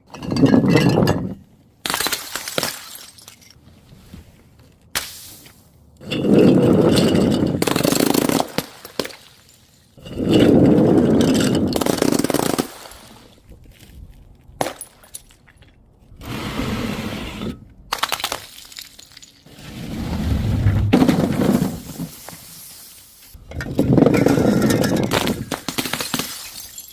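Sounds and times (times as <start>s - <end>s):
glass crushing and crunching: 0.0s - 3.6s, 17.9s - 19.5s, 23.5s - 26.9s
glass pieces snapping: 24.6s - 26.9s.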